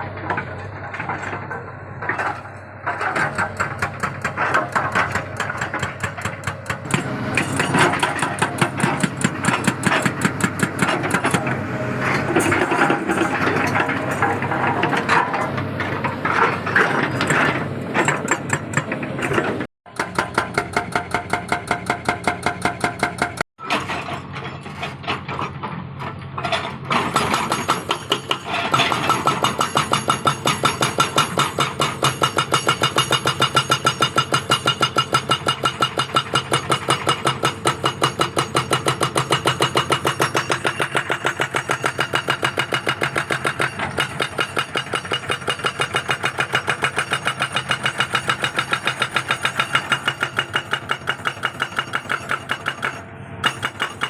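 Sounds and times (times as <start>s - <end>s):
hydraulic rock breaker hammering: 0.2s - 54.0s
diesel engine running: 6.8s - 19.6s.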